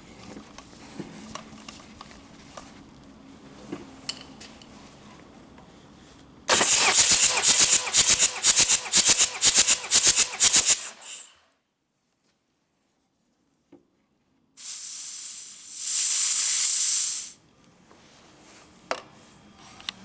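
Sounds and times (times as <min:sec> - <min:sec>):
diesel engine cranking on starter: 0:06.5 - 0:11.3.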